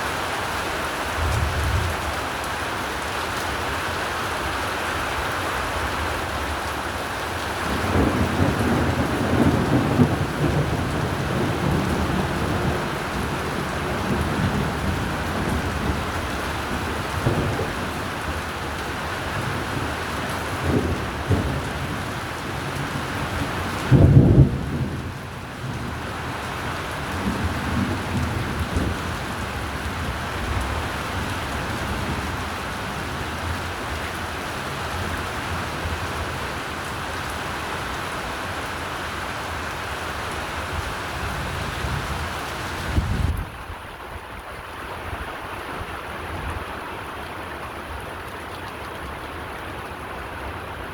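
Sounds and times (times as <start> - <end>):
steady rain: 0.0 - 50.9
rolling thunder: 7.6 - 18.4, 19.2 - 26.1.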